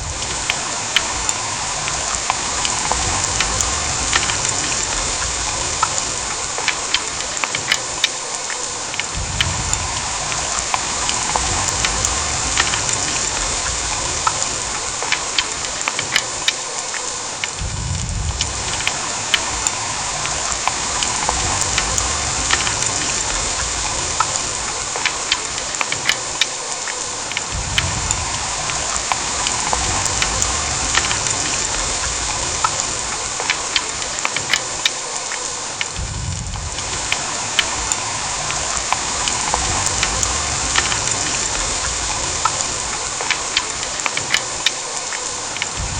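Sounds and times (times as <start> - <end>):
heavy rain hissing: 0.0 - 45.9
drip ticks: 0.1 - 45.9
low rumble: 17.6 - 18.9, 36.0 - 43.2.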